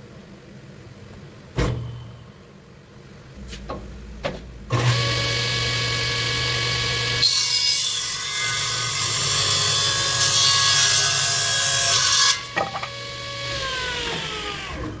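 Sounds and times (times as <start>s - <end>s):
table saw cutting board: 4.7s - 15.0s.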